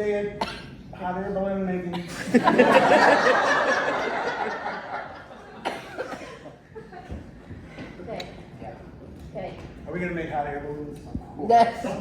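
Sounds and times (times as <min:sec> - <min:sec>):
audience laughing: 0:02.1 - 0:07.1.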